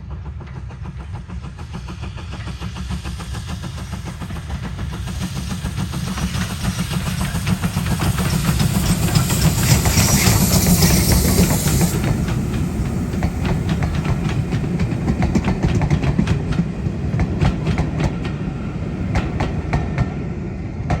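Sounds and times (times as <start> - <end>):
train low rumble: 0.0 - 21.0
train wheels clicking over rail joints: 0.0 - 21.0
high hiss: 3.8 - 15.1.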